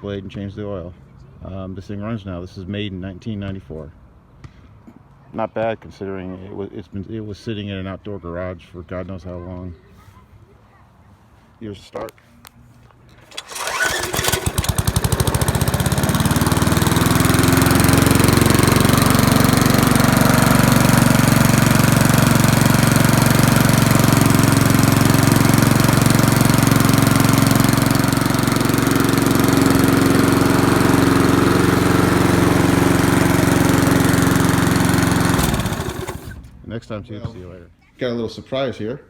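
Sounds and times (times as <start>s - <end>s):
lawn mower engine running: 13.3s - 36.5s.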